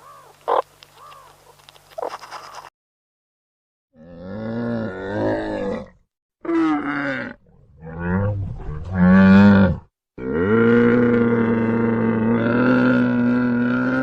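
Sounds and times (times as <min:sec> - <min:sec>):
deep animal calls: 0:04.0 - 0:14.0.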